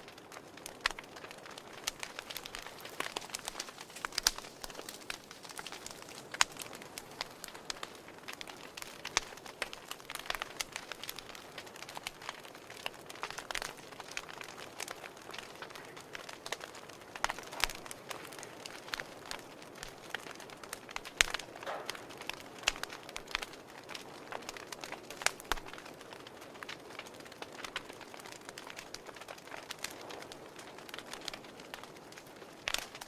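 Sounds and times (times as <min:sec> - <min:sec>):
fire crackling with pops: 0:00.0 - 0:33.0.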